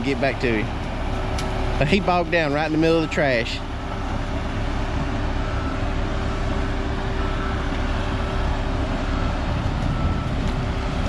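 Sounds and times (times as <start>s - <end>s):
heavy vehicle engine running: 0.0s - 11.0s
faint backup alarm beeping: 5.3s - 10.6s.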